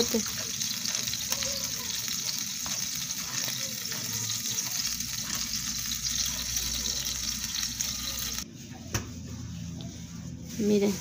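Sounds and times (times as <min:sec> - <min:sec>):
salsa sizzling in a hot pan: 0:00.0 - 0:08.4.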